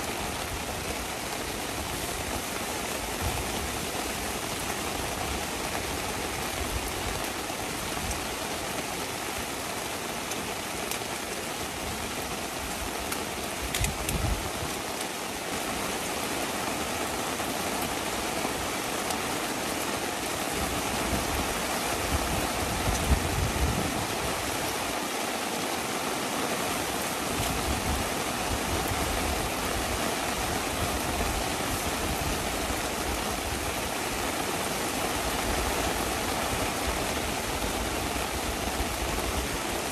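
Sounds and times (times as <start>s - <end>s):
heavy rain hissing: 0.0s - 39.9s
rain drop ticks: 10.2s - 11.1s, 13.0s - 14.3s.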